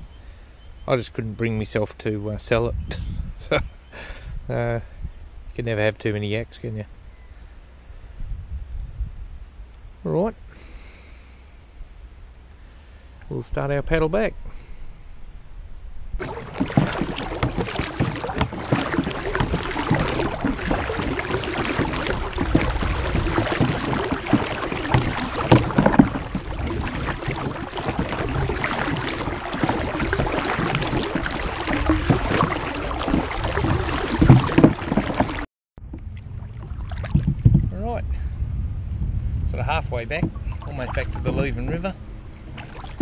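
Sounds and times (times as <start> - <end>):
paddle splashing: 16.2 - 37.6, 40.1 - 41.9, 42.5 - 43.0
water rushing along hull: 16.2 - 38.0, 39.5 - 43.0.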